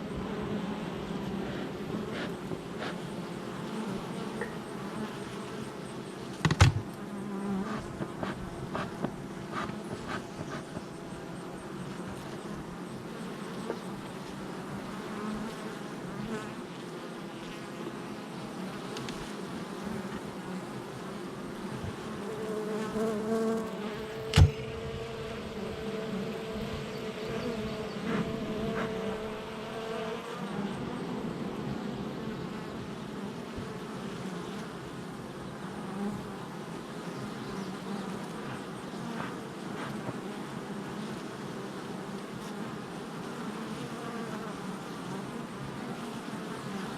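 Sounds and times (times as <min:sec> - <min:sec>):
single bee buzz: 0:00.0 - 0:35.0, 0:37.0 - 0:46.9
bees buzzing: 0:00.0 - 0:46.9
sharp tap: 0:24.3 - 0:24.7.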